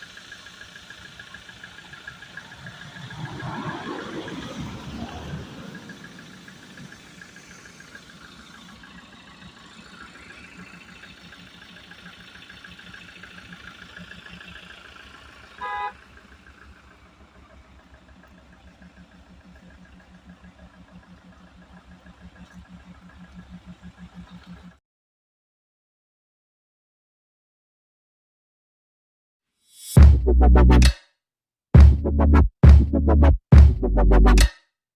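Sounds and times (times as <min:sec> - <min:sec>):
vehicle engine running: 0:00.0 - 0:24.8, 0:31.8 - 0:34.5
short horn toot: 0:15.6 - 0:16.0.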